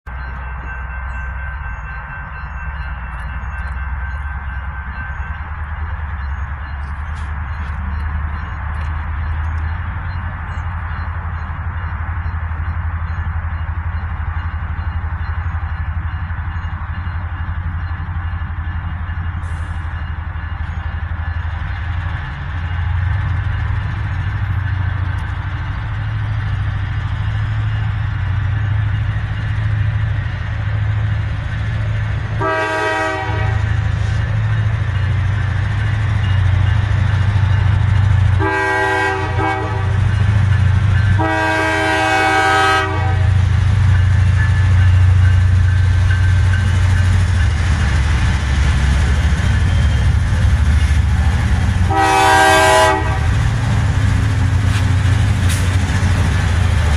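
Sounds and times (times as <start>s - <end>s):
diesel locomotive engine rumble: 0.0s - 56.9s
locomotive air horn blasts: 32.4s - 33.7s, 38.4s - 40.0s, 41.2s - 43.4s, 51.9s - 53.4s.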